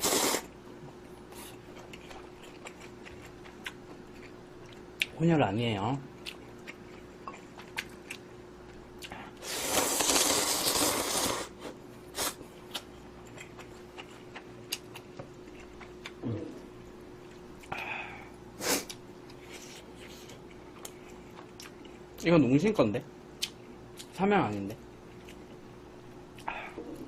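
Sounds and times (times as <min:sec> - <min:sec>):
person slurping noodles: 0:00.0 - 0:00.5, 0:09.4 - 0:12.4.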